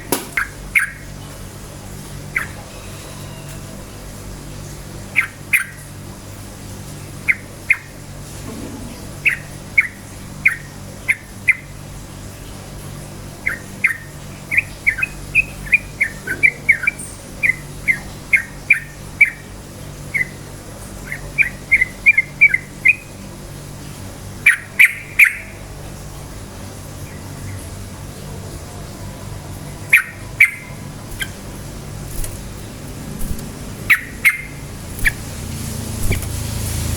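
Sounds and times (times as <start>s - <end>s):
steady low hum: 0.0s - 36.9s
bird singing whistled notes: 13.5s - 19.4s, 29.9s - 31.4s, 33.9s - 35.2s.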